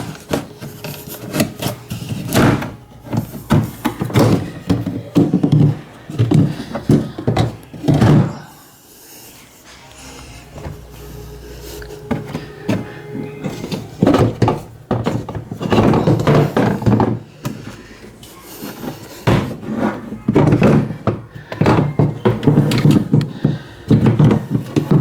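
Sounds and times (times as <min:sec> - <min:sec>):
machine parts and tools clattering: 0:00.0 - 0:08.6, 0:09.3 - 0:25.0.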